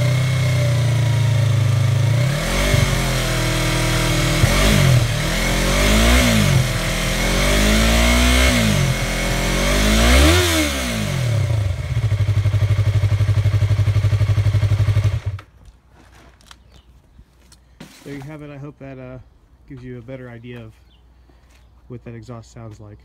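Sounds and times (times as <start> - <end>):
motorcycle engine revving and idling: 0.0 - 15.6.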